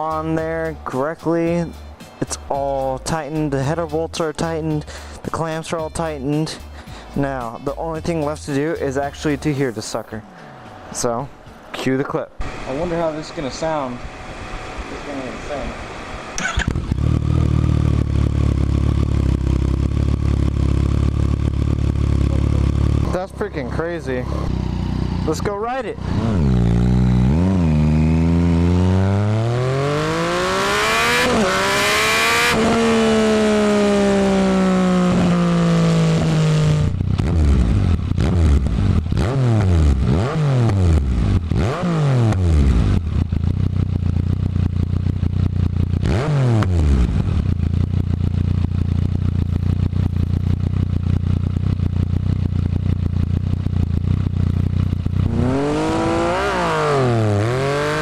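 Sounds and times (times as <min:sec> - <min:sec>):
motorcycle engine revving and idling: 0:12.4 - 0:58.0.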